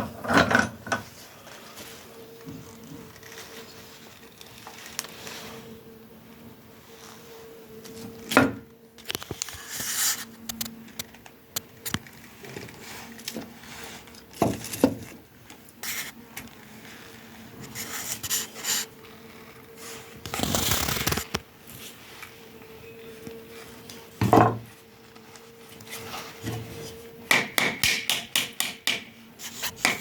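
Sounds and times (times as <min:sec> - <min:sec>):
rubbing and scraping strokes: 0:19.8 - 0:21.4.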